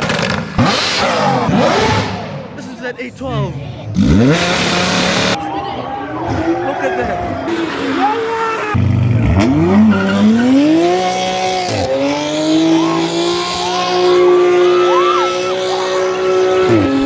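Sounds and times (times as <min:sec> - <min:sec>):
car engine revving hard: 0:00.0 - 0:02.5, 0:03.9 - 0:05.4, 0:07.5 - 0:17.0.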